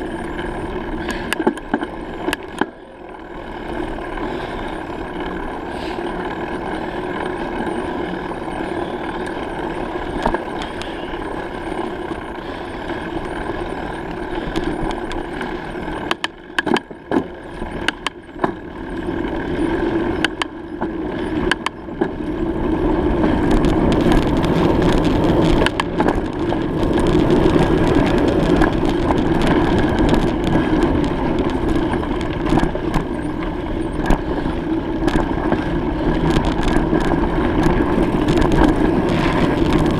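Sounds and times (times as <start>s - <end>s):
bicycle ride rushing noise: 0.0s - 39.9s
sharp clicks and knocks: 1.0s - 2.7s, 16.0s - 18.6s, 20.2s - 22.2s, 23.5s - 34.2s.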